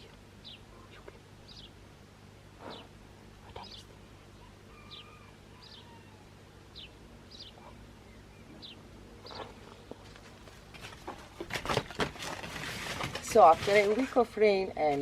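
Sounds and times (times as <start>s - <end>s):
faint bird chirps: 2.6s - 2.9s, 3.5s - 9.9s
clicks and rustling: 9.3s - 14.2s.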